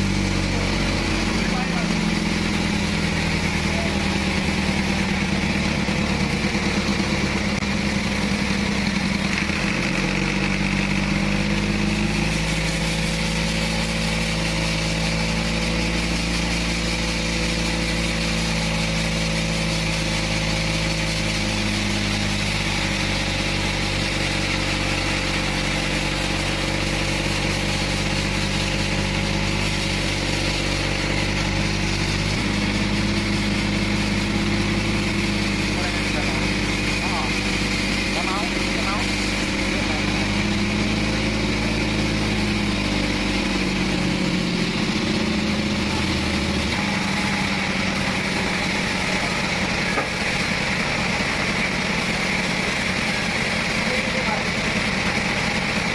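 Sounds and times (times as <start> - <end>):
sawmill engine running: 0.0 - 55.9.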